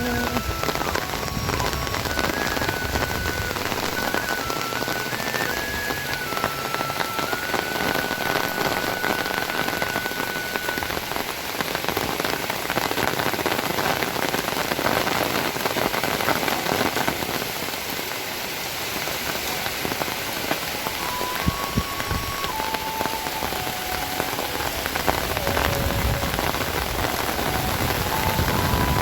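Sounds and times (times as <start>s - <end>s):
held stepped tones: 0.0s - 11.6s, 20.7s - 29.0s
heavy rain falling: 0.0s - 29.0s.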